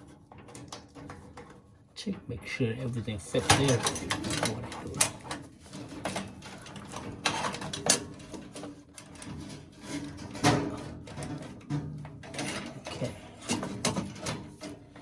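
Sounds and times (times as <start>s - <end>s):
metal parts clicking and scraping: 3.3s - 15.0s.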